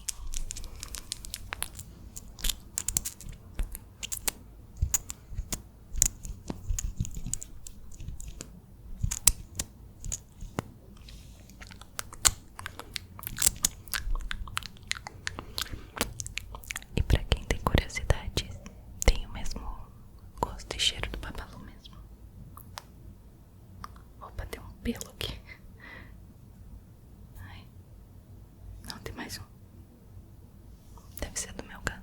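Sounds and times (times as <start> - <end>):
wet mouth clicks and smacks: 11.5 - 17.8.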